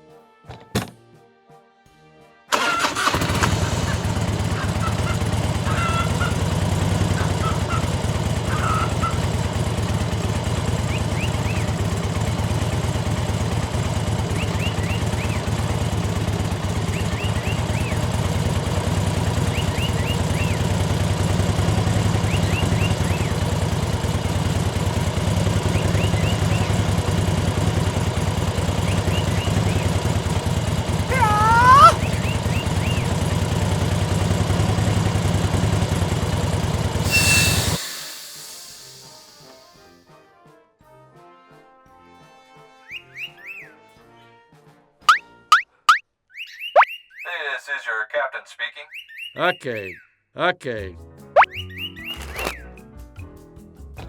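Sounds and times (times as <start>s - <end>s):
small engine running: 2.5s - 40.0s, 52.0s - 52.7s
faint high chirps: 37.1s - 39.9s, 46.5s - 47.1s.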